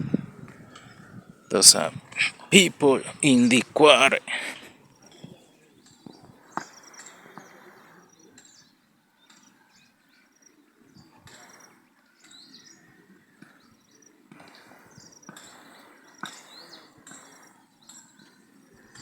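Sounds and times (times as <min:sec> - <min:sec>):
birds chirping: 0:00.0 - 0:04.7.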